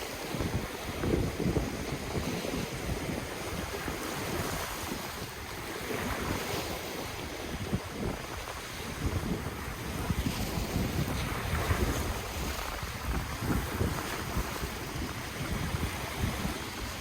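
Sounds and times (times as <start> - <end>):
ocean waves washing ashore: 0.0 - 17.0
wind rumbling on microphone: 0.0 - 17.0.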